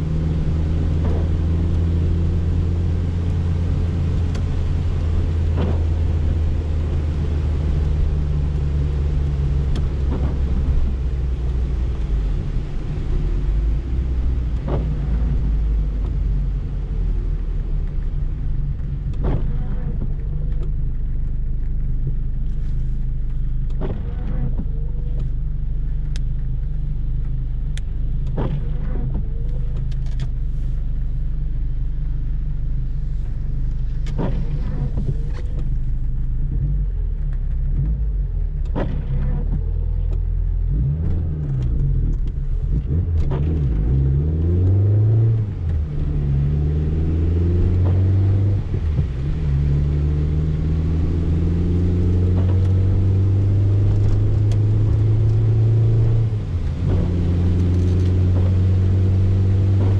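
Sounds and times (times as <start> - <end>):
car engine humming: 0.0 - 59.9
windscreen wipers swishing: 0.0 - 59.9
rain ticking on glass: 40.0 - 59.9.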